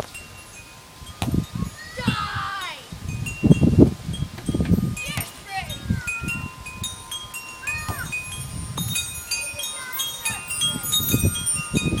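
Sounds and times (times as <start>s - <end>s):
wind buffeting microphone: 0.0s - 12.0s
wind chimes tinkling: 0.0s - 12.0s.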